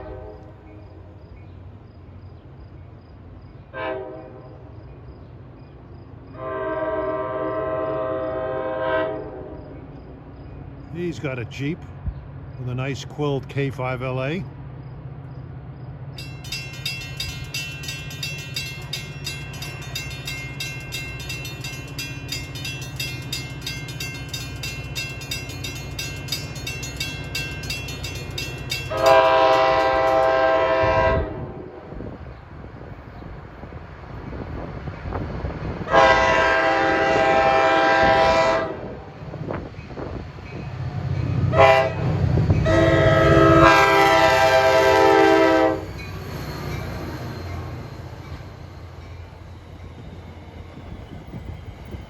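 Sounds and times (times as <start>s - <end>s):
air horn blasts: 3.8s - 4.5s, 6.4s - 9.6s, 28.9s - 31.6s, 35.9s - 39.0s, 41.5s - 45.9s
low engine rumble: 9.7s - 35.0s
fast high ringing: 16.2s - 30.4s.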